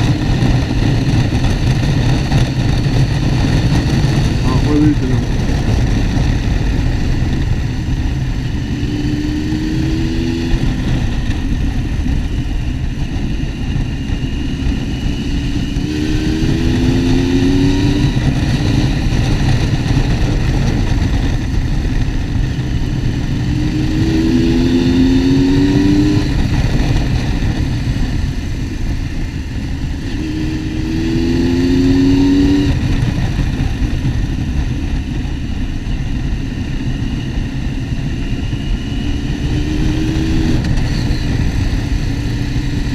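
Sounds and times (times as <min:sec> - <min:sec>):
motorcycle engine accelerating: 0:00.0 - 0:42.9
wind and road noise: 0:00.0 - 0:42.9.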